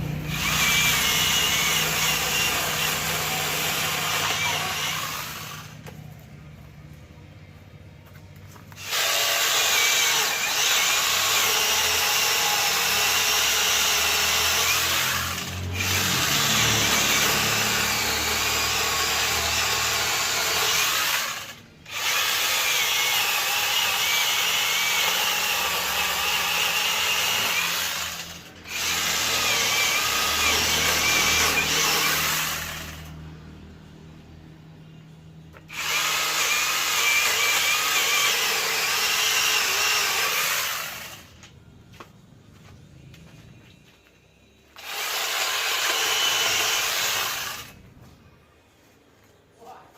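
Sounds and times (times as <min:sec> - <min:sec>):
grinder chainsaw cutting wood: 0:00.0 - 0:06.0, 0:08.7 - 0:33.2, 0:35.6 - 0:41.4, 0:44.8 - 0:47.8.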